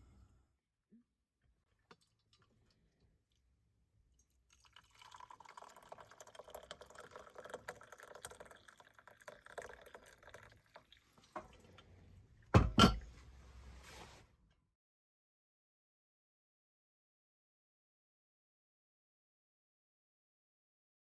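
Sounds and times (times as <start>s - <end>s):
soup sloshing and pouring: 4.1s - 11.9s.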